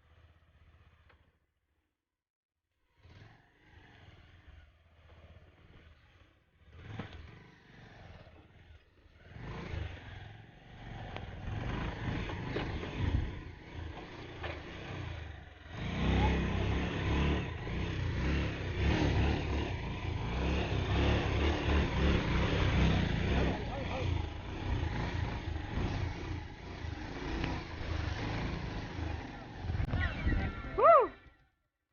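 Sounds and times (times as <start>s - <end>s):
motorcycle engine running: 2.9s - 31.1s.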